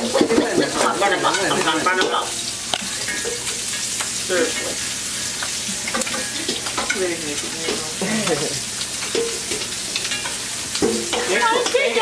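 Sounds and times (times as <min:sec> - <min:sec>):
crab sizzling in hot oil: 0:00.0 - 0:12.0
metal spatula scraping a pan: 0:04.5 - 0:12.0.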